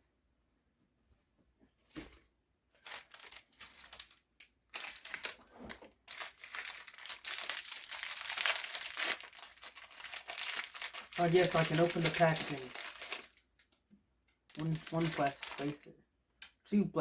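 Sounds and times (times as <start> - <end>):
plastic bags crinkling: 2.8 - 13.7, 14.5 - 15.9.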